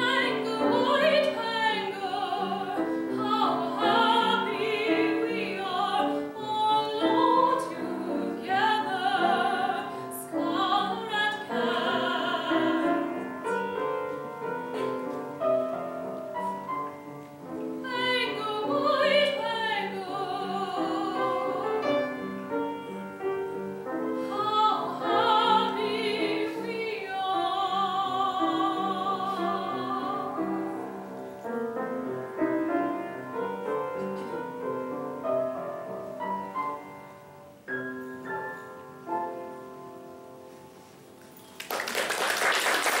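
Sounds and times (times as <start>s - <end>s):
classical singing with vibrato: 0.0s - 37.4s
piano: 0.0s - 43.0s
audience applause: 41.5s - 43.0s.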